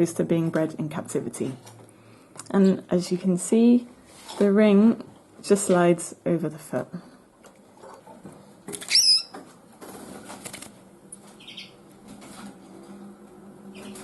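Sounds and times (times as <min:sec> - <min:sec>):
bird chirping: 0:08.9 - 0:09.3, 0:11.4 - 0:11.8
bird wings fluttering: 0:09.8 - 0:10.7.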